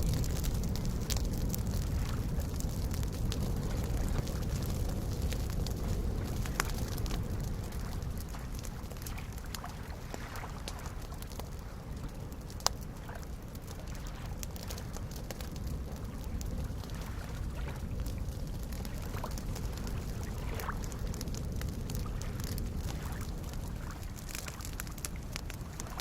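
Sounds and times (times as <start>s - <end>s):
campfire crackling and popping: 0.0s - 26.0s
lake waves lapping: 0.1s - 12.2s, 15.6s - 21.2s, 21.8s - 26.0s.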